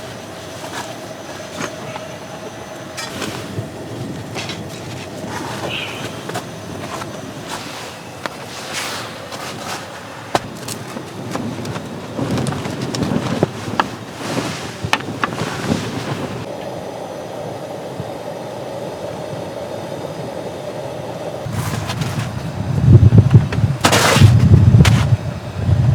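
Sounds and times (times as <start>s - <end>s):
tent fabric flapping: 3.0s - 16.5s, 21.4s - 25.4s
storm wind gusting: 10.0s - 25.9s.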